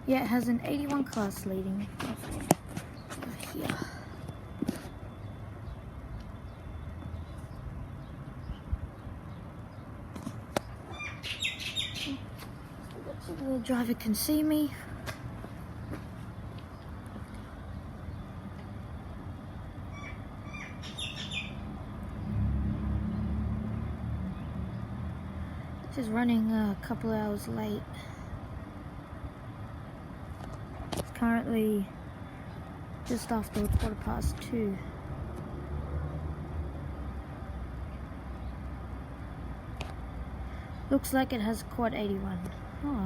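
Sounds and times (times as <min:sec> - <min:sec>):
birds chirping: 0:00.0 - 0:22.4
diesel locomotive engines rumbling: 0:12.0 - 0:43.0.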